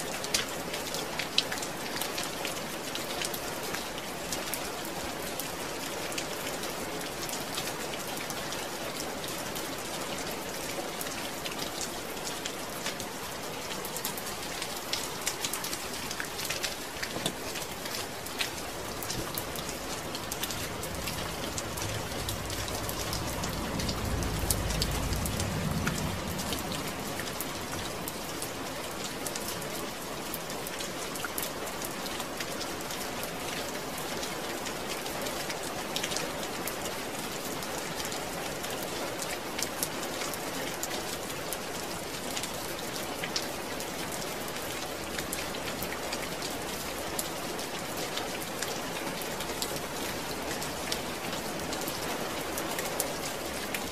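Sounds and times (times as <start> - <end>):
rain falling: 0.0 - 53.9
raindrops ticking: 14.1 - 33.0
low rumble: 18.7 - 28.6.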